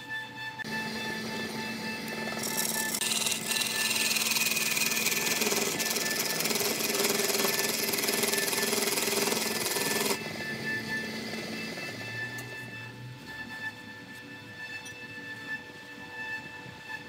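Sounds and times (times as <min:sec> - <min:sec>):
wood lathe tool rasping chatter: 0:00.6 - 0:10.6.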